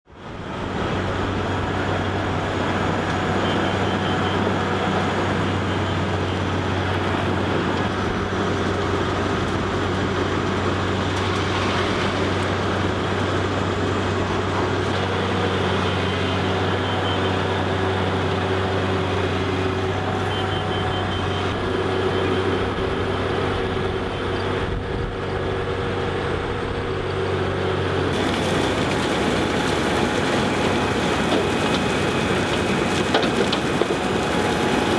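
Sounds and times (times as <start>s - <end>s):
heavy vehicle engine running: 0.1s - 34.9s.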